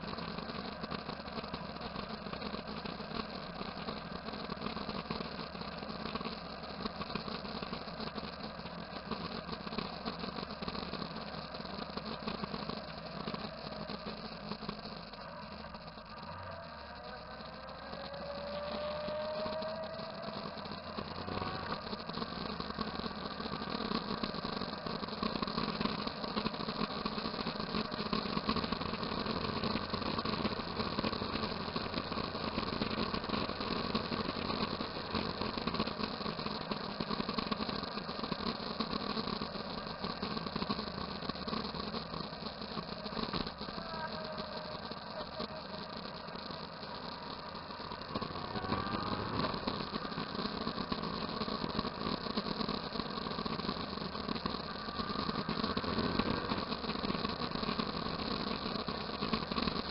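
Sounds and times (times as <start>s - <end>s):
engine revving whine: 0.0s - 59.9s
motorcycle engines running: 10.6s - 36.8s, 43.6s - 52.8s, 53.4s - 57.2s.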